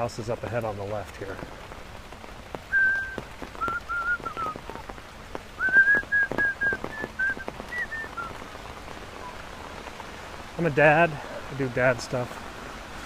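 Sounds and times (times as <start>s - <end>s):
rain pattering: 0.0s - 13.0s
person whistling a tune: 2.7s - 4.6s, 5.6s - 8.3s.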